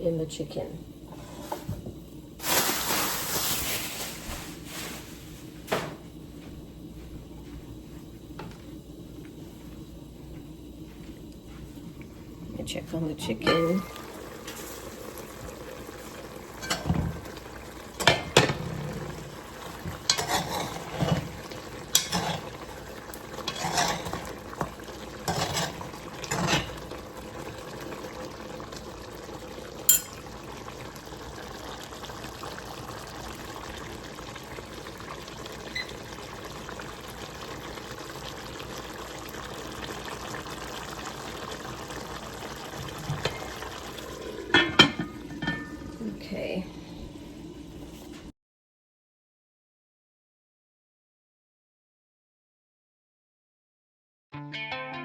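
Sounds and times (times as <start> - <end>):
cooking hiss from pot: 0.1 - 48.3
spoon scraping in a pot: 20.1 - 21.3, 21.9 - 22.5, 23.4 - 24.3, 25.3 - 26.8.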